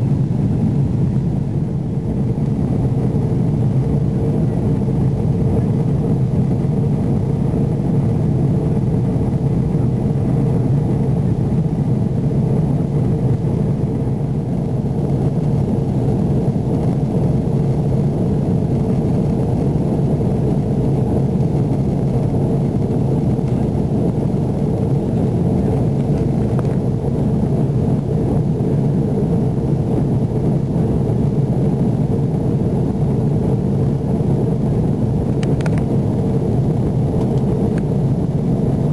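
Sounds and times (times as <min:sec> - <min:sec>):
aircraft cabin engine rumble: 0:00.0 - 0:38.9.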